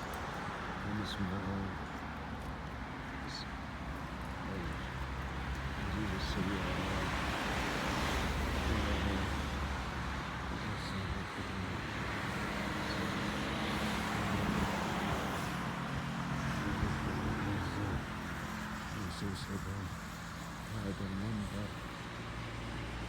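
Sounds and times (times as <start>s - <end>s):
cars passing by: 0.0s - 23.0s.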